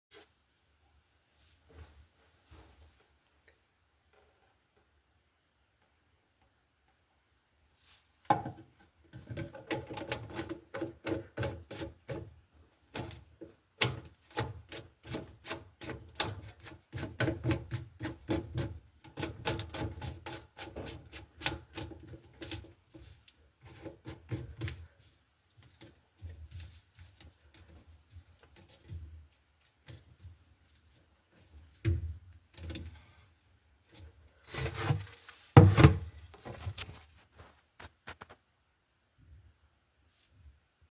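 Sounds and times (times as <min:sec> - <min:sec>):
rubbing and scraping strokes: 0:33.9 - 0:38.4.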